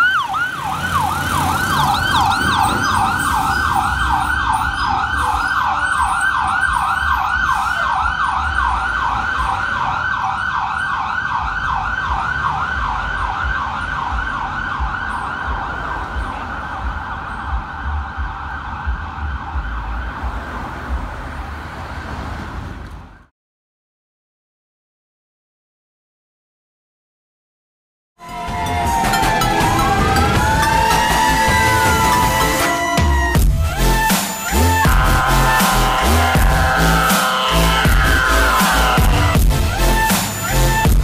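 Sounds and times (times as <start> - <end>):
electronic siren yelping: 0.0 - 19.9, 28.2 - 41.0
truck engine rumble: 0.0 - 23.3, 28.2 - 41.0.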